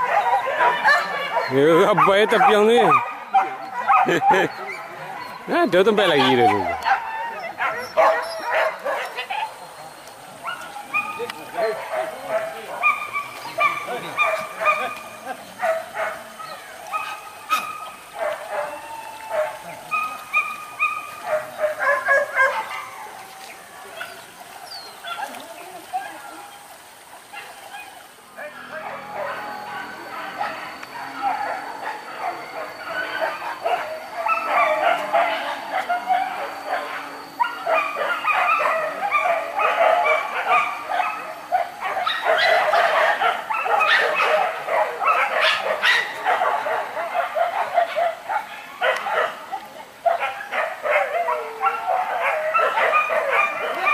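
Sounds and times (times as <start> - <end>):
dogs barking and yelping: 0.0 - 53.9.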